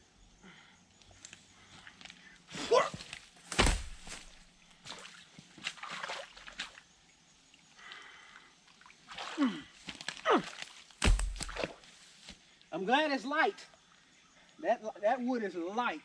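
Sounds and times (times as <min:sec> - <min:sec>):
heavy thud: 0:03.5 - 0:04.4, 0:11.0 - 0:11.6
water splashing: 0:03.5 - 0:04.4
wood knocking: 0:03.5 - 0:04.4, 0:11.0 - 0:11.6.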